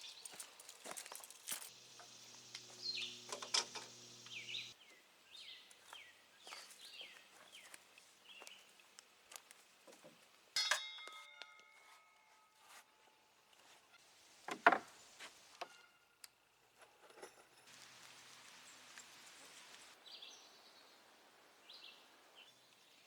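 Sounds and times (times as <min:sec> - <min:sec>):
bird chirping: 0:01.7 - 0:08.7
low steady hum: 0:01.8 - 0:04.8
metal clank ringing: 0:10.6 - 0:11.6.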